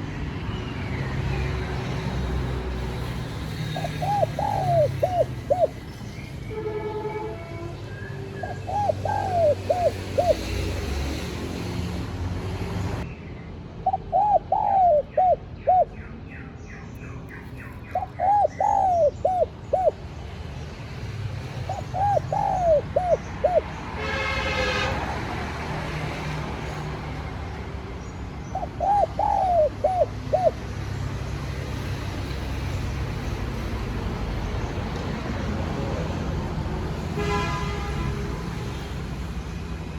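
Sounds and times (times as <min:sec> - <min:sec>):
dove cooing: 0:03.7 - 0:05.8, 0:08.4 - 0:10.7, 0:13.8 - 0:15.9, 0:17.9 - 0:20.0, 0:21.7 - 0:23.7, 0:28.5 - 0:30.7.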